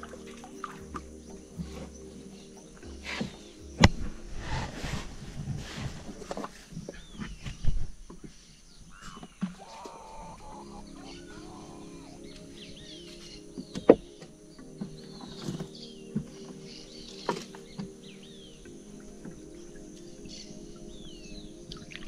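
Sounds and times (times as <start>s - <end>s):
low musical tones: 0.0s - 8.0s, 9.4s - 22.0s
birds chirping: 0.0s - 22.0s.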